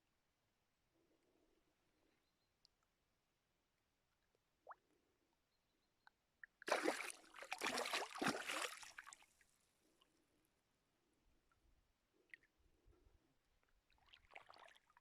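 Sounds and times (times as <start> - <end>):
water splashing and sloshing: 6.6 - 9.2, 13.9 - 15.0.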